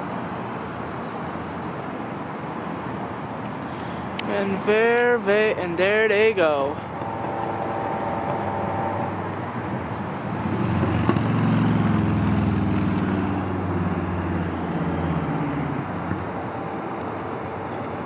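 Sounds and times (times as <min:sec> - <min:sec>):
vehicle engine passing by: 0:06.8 - 0:18.0.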